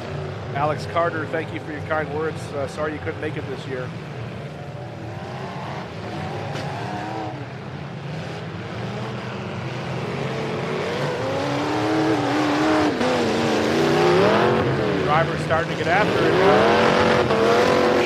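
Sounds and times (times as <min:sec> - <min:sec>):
truck engines revving hard: 0:00.0 - 0:18.0.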